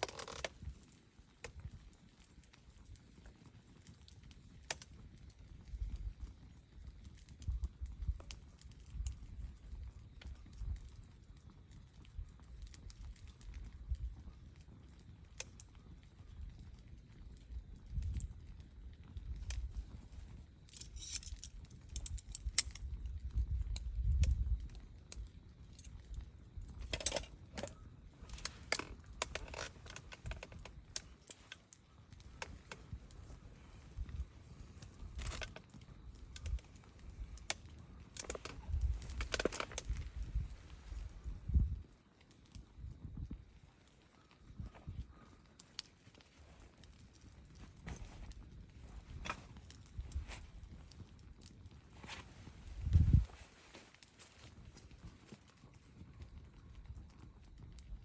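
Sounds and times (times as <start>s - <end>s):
campfire crackling and popping: 0.0s - 58.0s
small hard objects clinking: 20.6s - 22.6s.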